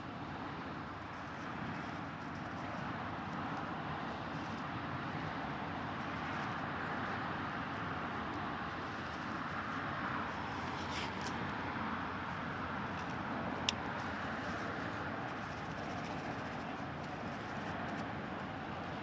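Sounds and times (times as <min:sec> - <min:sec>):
outdoor background rush: 0:00.0 - 0:19.0.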